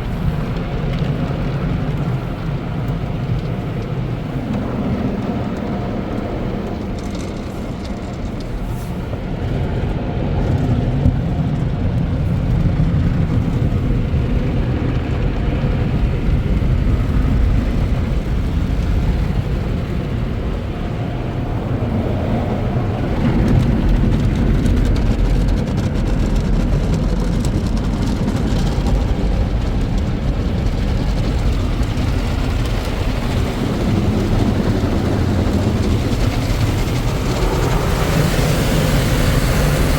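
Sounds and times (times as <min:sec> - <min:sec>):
car wash equipment rumbling: 0:00.0 - 0:39.9.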